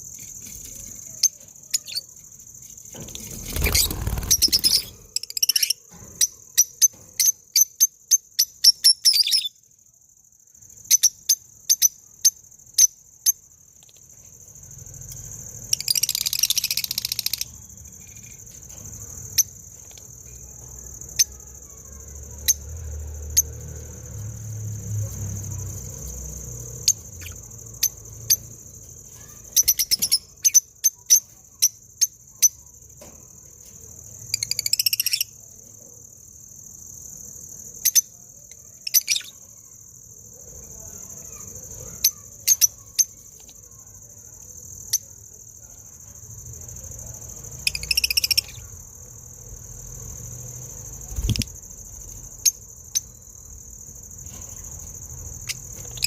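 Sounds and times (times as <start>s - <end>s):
insect trill: 0.0s - 56.0s
high sharp chirps: 3.5s - 5.8s.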